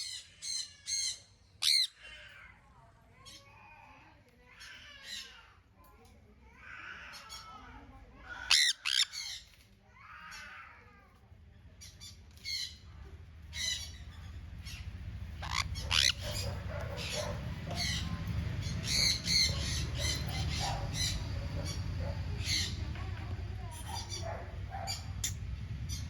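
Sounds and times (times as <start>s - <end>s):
parrots squawking: 0.0s - 2.4s, 7.0s - 9.5s, 13.5s - 26.0s
low steady rumble: 11.4s - 26.0s.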